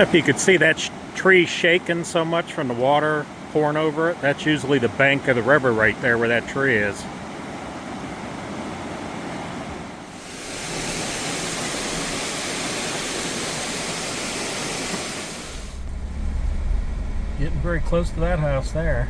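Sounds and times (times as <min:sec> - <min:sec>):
rushing floodwater: 0:00.0 - 0:15.8
low rumble: 0:15.5 - 0:19.0.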